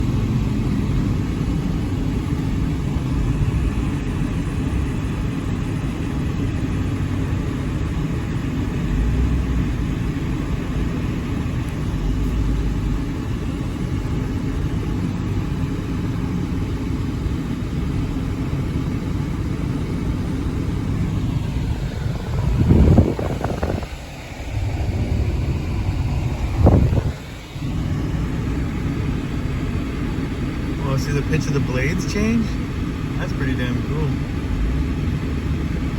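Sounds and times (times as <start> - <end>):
helicopter rotor rumble: 0.0 - 35.9.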